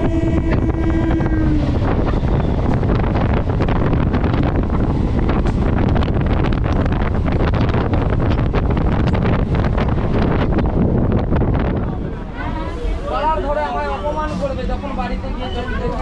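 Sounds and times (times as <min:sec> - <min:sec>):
train horn tone: 0:00.0 - 0:03.2
wind on microphone: 0:00.0 - 0:13.0
train rumble: 0:00.0 - 0:16.0.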